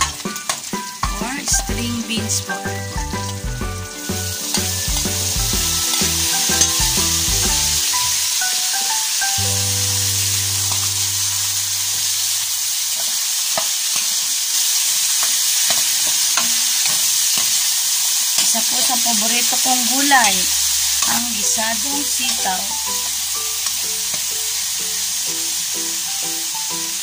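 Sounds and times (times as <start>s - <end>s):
beans sizzling in a wok: 0.0s - 27.0s
metal spatula scraping a pan: 5.8s - 7.5s.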